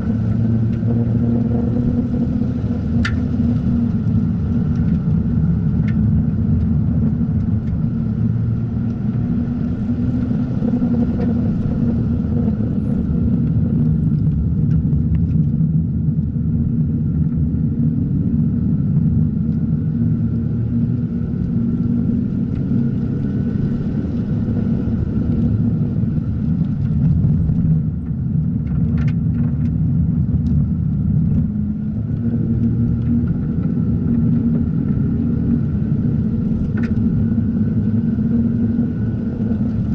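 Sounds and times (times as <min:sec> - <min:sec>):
car engine droning at speed: 0:00.0 - 0:39.9.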